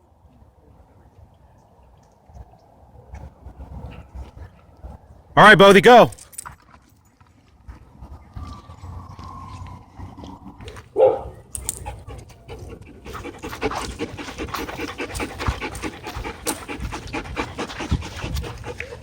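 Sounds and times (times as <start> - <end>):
dog panting: 11.6 - 19.0.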